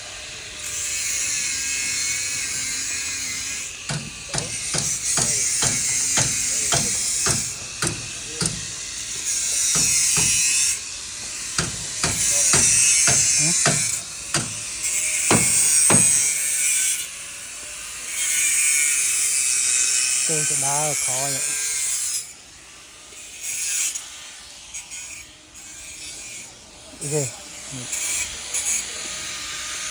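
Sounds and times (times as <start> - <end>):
hammer blows on metal or wood: 3.9 - 16.5.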